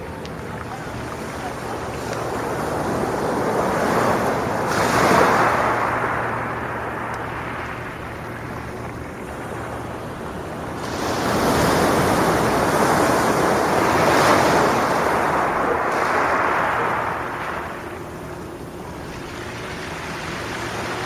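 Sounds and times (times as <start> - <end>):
sea waves washing on beach: 0.0 - 21.0
wave breaking with hissing rush: 10.8 - 17.9.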